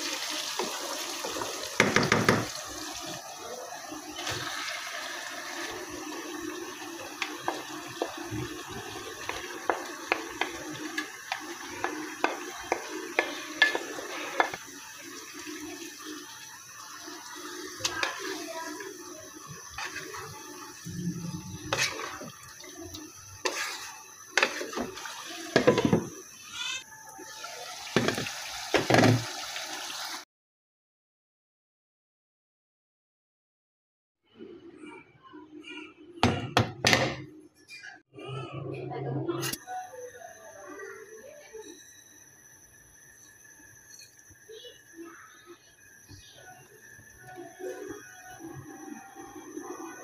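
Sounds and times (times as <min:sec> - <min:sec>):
food sizzling in a pan: 0:00.0 - 0:30.2, 0:39.6 - 0:50.0
spatula scraping a pan: 0:07.2 - 0:14.6, 0:19.6 - 0:26.8.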